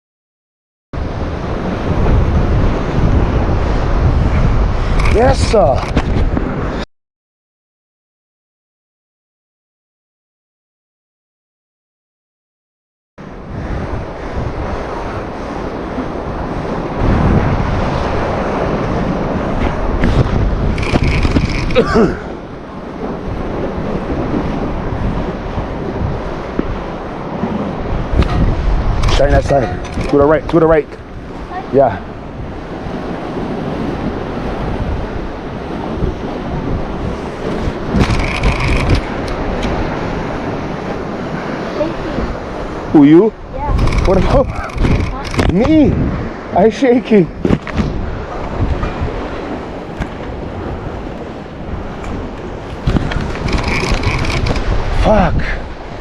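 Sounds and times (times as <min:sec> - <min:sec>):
surf breaking on shore: 0:01.0 - 0:06.8, 0:13.2 - 0:56.0
wind buffeting microphone: 0:01.0 - 0:06.8, 0:13.2 - 0:56.0.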